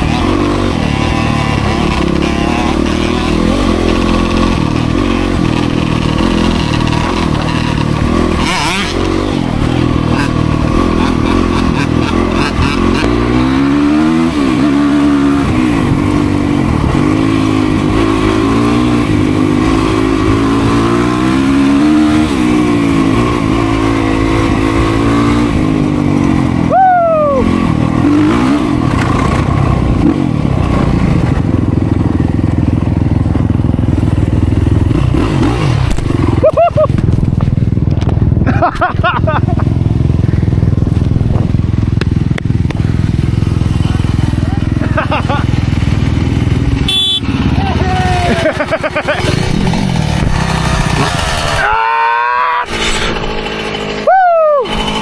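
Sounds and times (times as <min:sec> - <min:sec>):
dirt bike engine revving: 0:00.0 - 0:55.0
high falling squeal: 0:51.5 - 0:55.0.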